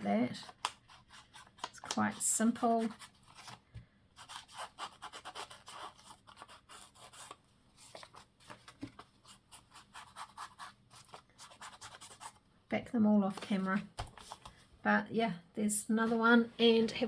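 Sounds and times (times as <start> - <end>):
paper and card crinkling: 0.2 - 12.4, 13.3 - 14.6.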